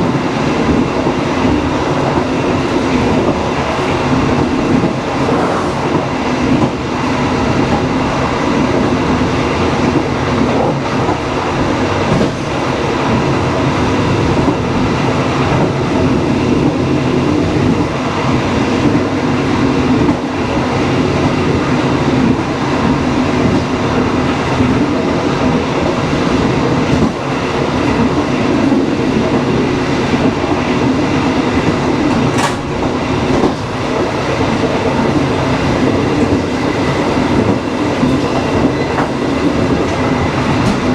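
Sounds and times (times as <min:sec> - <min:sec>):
train rumble: 0:00.0 - 0:40.9
wheels clacking over rail joints: 0:31.6 - 0:40.9.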